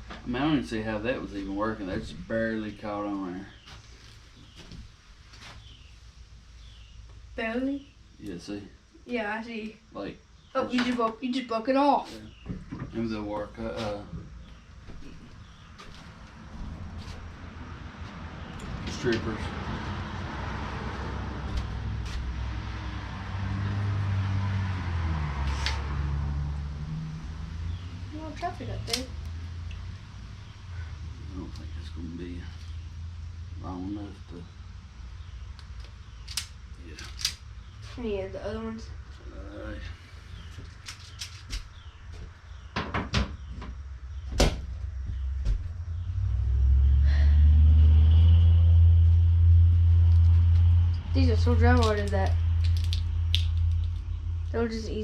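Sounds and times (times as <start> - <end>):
deep steady rumble: 0.0 - 55.0
vehicle engine humming: 0.0 - 55.0
plastic connectors breaking: 36.2 - 37.4, 51.7 - 54.1.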